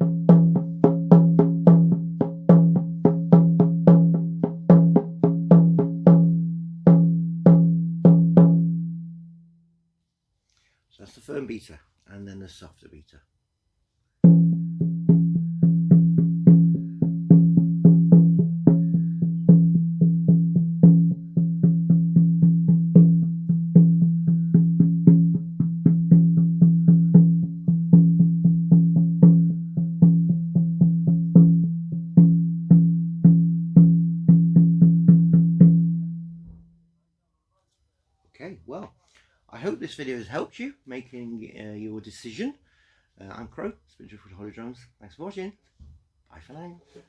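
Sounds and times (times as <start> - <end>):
frame drum struck with beater: 0.0 - 8.9, 14.2 - 36.0.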